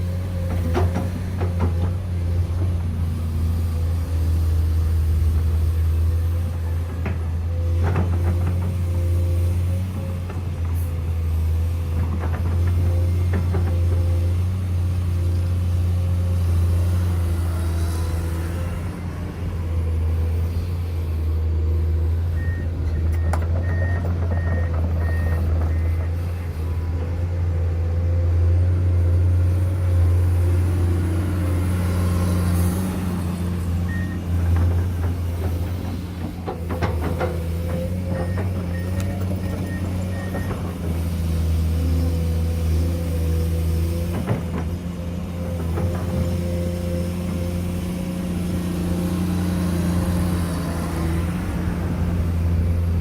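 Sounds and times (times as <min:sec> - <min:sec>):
heavy construction machinery drone: 0:00.0 - 0:53.0
reversing alarm beeping: 0:22.4 - 0:26.1.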